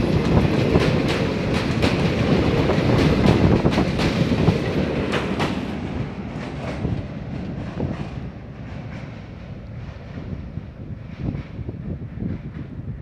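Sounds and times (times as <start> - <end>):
train wheels clacking over rail joints: 0.0 - 12.9
passing train rumble: 0.0 - 13.0.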